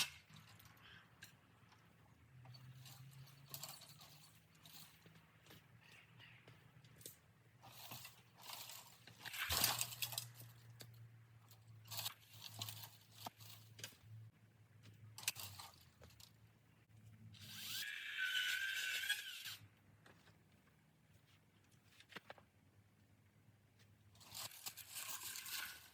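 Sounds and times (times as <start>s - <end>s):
dry bamboo cracking: 6.9s - 11.0s, 24.2s - 25.9s.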